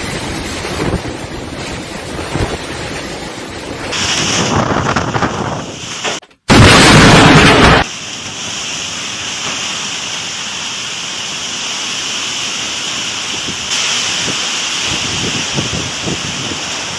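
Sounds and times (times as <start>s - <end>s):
heavy rain pouring: 0.0s - 16.9s
loud crash: 3.9s - 7.9s.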